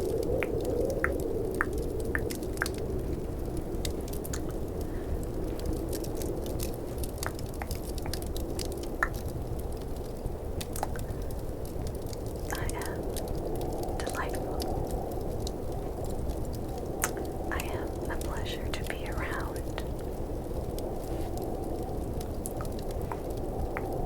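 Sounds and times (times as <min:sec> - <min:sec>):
faint fireplace crackle: 0:00.0 - 0:24.0
snowstorm wind rush: 0:00.0 - 0:24.0
tongue clicks: 0:17.0 - 0:18.4.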